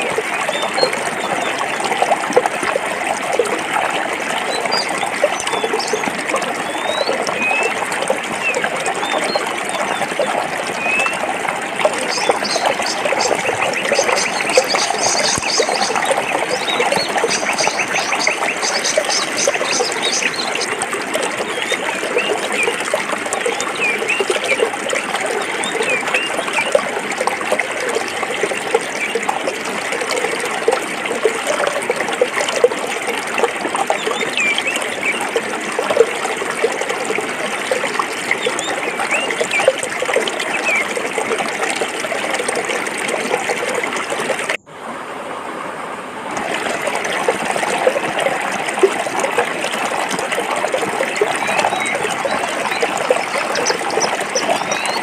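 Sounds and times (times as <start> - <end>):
stream babbling over rocks: 0.0 - 55.0
birds chirping: 4.4 - 26.8, 38.4 - 39.8, 51.1 - 55.0.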